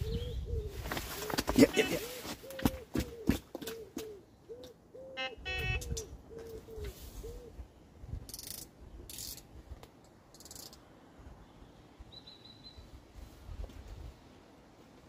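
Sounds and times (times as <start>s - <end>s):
wind rumbling on microphone: 0.0s - 1.1s, 5.6s - 8.3s.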